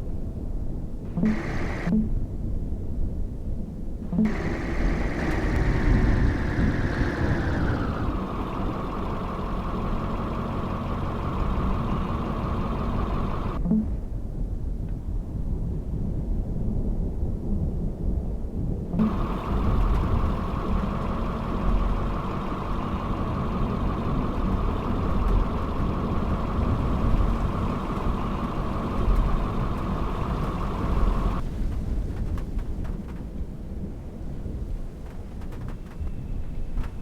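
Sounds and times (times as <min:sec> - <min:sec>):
car driving rumble: 0:01.1 - 0:02.0, 0:04.2 - 0:13.6, 0:19.0 - 0:31.5
high whir: 0:01.1 - 0:02.0, 0:04.2 - 0:13.8, 0:19.0 - 0:31.4.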